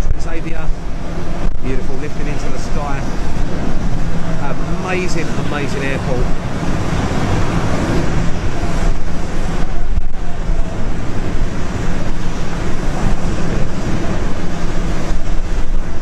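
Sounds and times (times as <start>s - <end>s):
jet engine noise: 0.0s - 16.0s.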